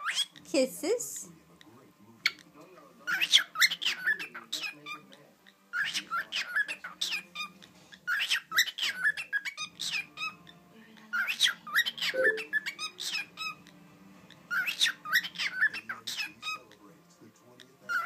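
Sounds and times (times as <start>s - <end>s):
cockatiel chirping and whistling: 8.1s - 10.2s, 11.2s - 13.6s, 14.5s - 16.6s.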